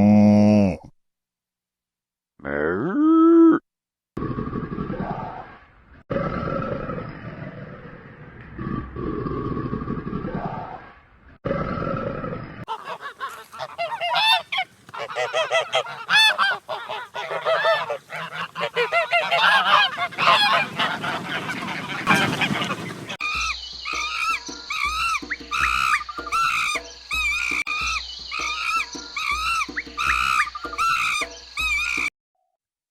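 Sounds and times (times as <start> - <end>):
geese honking: 12.7 - 32.1.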